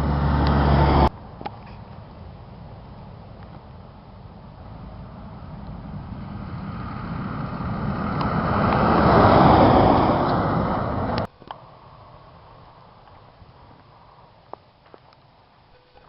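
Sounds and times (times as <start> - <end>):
vehicle passing on snowy road: 0.0 - 1.1, 3.7 - 14.4.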